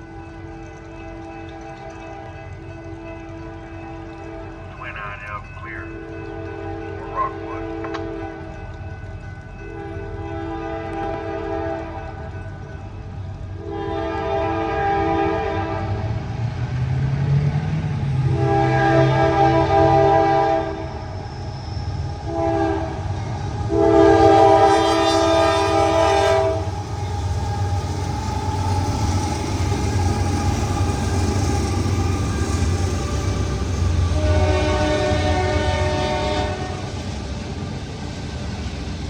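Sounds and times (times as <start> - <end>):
train rumbling: 0.0 - 39.0
locomotive air horn blasts: 9.8 - 12.0, 13.6 - 16.0, 18.3 - 20.8, 22.3 - 23.0, 23.7 - 26.7, 34.1 - 36.9.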